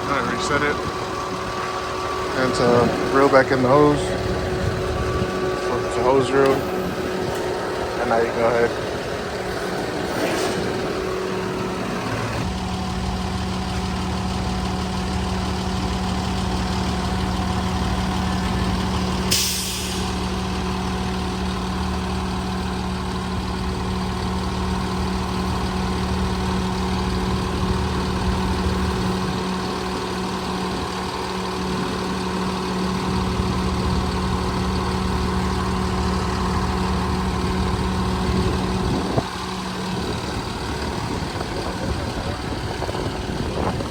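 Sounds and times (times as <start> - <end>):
hose reel motor humming: 0.0 - 43.9
truck engine idling: 0.0 - 43.9
air hiss: 19.3 - 20.2.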